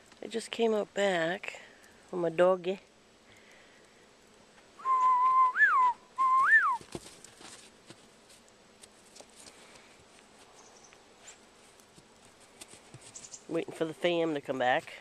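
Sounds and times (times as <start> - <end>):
person whistling: 4.8 - 6.8.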